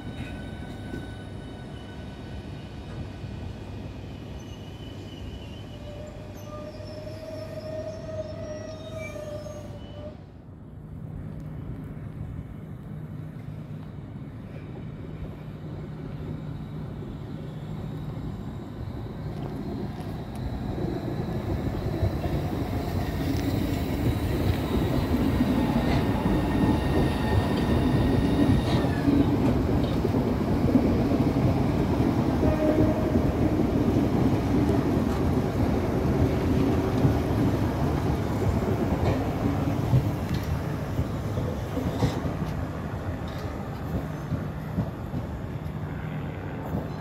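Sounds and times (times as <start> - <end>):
train wheels rumbling on rails: 10.8 - 47.0.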